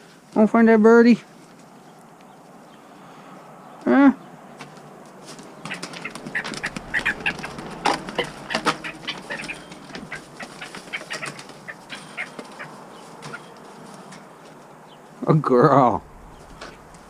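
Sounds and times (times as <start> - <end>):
clicks and rustles: 4.6 - 14.8
bird chirps: 5.5 - 13.6, 16.0 - 17.0.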